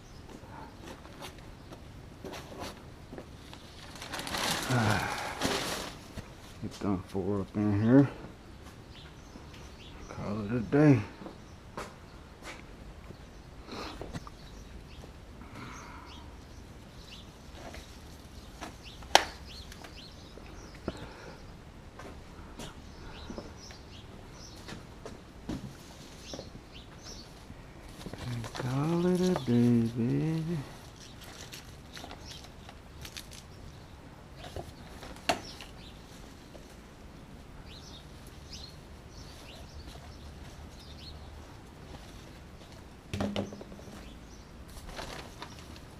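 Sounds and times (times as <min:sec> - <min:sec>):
birds chirping faintly: 0:00.0 - 0:45.9
knocks and scuffs of yard work: 0:00.2 - 0:15.2, 0:16.6 - 0:45.9.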